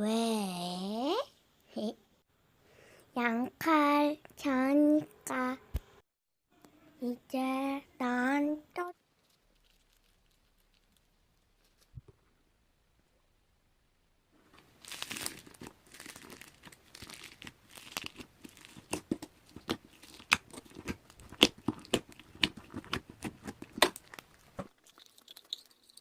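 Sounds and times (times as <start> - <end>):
crinkling and rustling: 8.9 - 12.3, 14.4 - 26.0.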